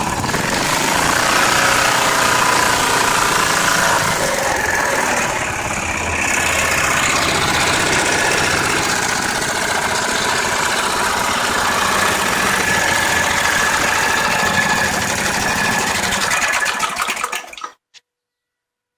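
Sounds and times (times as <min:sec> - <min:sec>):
small engine running: 0:00.0 - 0:17.8.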